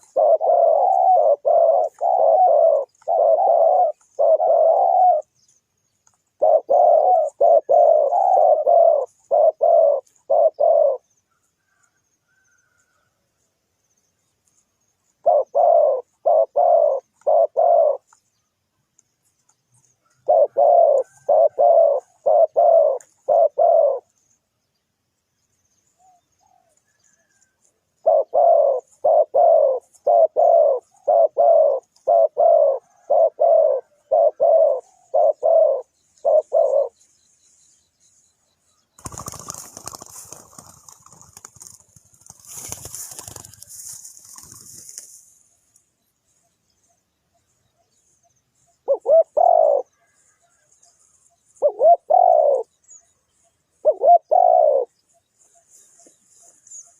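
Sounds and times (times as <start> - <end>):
dove cooing: 0.0 - 5.4, 6.3 - 12.8, 15.2 - 18.2, 20.0 - 24.2, 26.0 - 37.0, 48.7 - 50.6, 51.6 - 52.8, 53.7 - 56.9.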